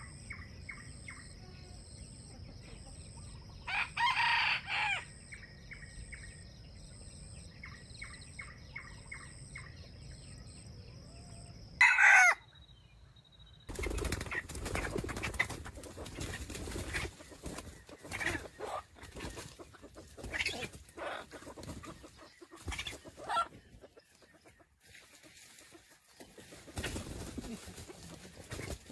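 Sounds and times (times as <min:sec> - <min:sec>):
chicken clucks: 0:00.0 - 0:06.5, 0:14.2 - 0:28.9
high insect whine: 0:00.0 - 0:12.3
rooster crowing: 0:03.5 - 0:05.4, 0:11.8 - 0:12.4
wing flapping and scuffling: 0:13.7 - 0:28.9.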